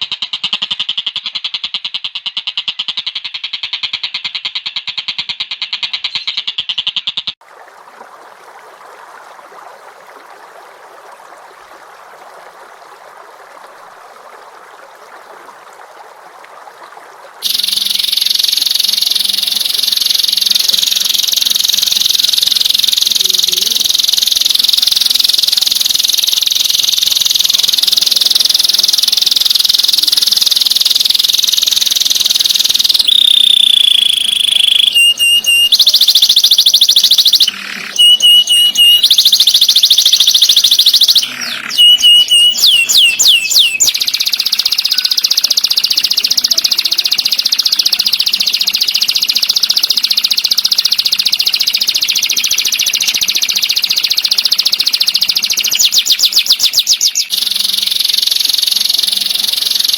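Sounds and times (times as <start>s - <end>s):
songbird fast trill: 0.0s - 7.4s, 17.4s - 59.9s
bird downward-sweeping calls: 17.4s - 22.4s, 32.3s - 57.5s.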